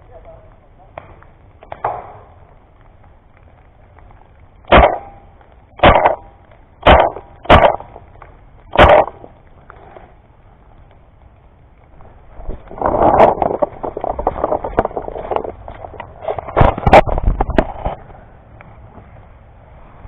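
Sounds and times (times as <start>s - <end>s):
paintball marker shots: 4.7s - 5.2s, 5.8s - 7.9s, 8.7s - 9.2s.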